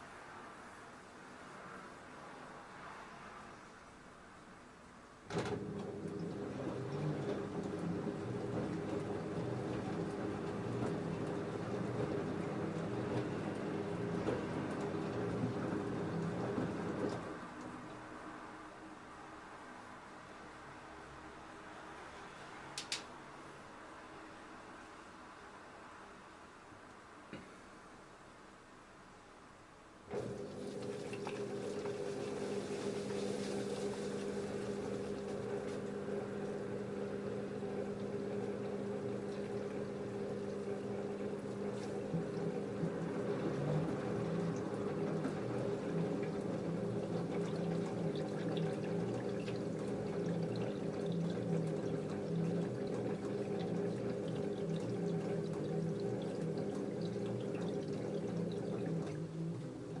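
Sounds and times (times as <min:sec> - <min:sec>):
water running into washing machine: 0:05.3 - 0:18.2, 0:30.1 - 1:00.0.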